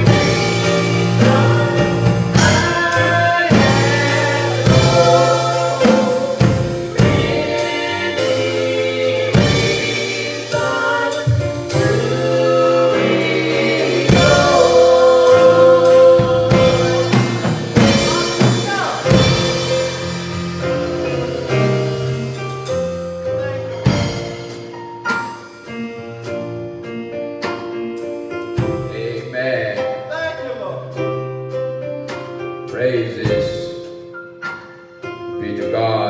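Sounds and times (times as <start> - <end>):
voices singing gospel: 0.0 - 22.8, 28.6 - 30.8
instruments playing: 0.0 - 24.6
drum kit beat: 0.0 - 26.4, 28.6 - 29.0, 33.3 - 34.8.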